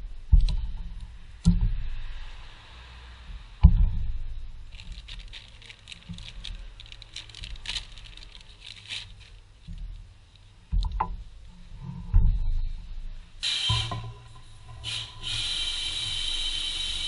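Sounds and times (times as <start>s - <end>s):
light clicks and rustles: 4.7s - 12.4s.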